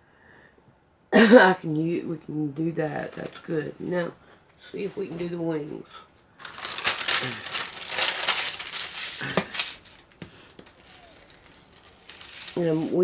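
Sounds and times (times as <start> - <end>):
paper crinkling and rustling: 3.0 - 3.5, 6.4 - 13.0.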